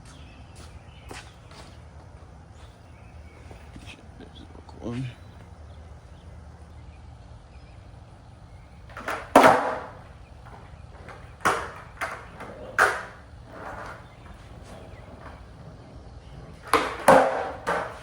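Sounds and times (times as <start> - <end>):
skateboard clacking on hard ground: 8.7 - 18.0.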